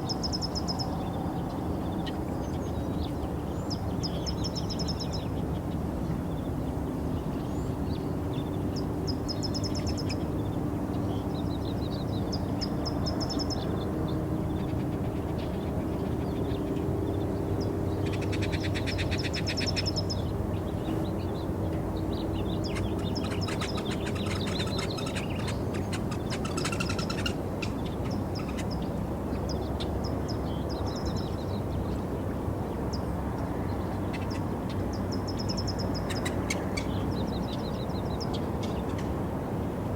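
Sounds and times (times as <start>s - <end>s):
birds chirping: 6.3s - 32.1s
rapid bird trills: 22.4s - 28.9s.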